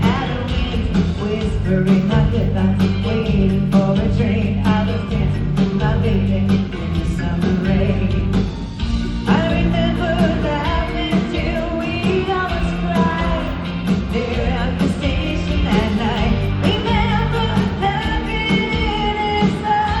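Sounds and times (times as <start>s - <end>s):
woman singing: 0.0s - 8.5s, 9.2s - 20.0s
pop-rock band playing: 0.0s - 20.0s
steady drum beat: 0.0s - 20.0s.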